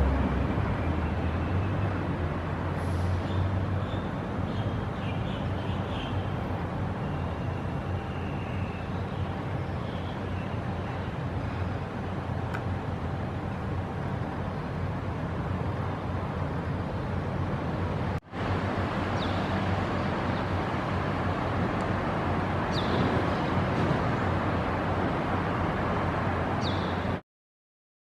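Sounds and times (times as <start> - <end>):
distant traffic noise: 0.0 - 27.2.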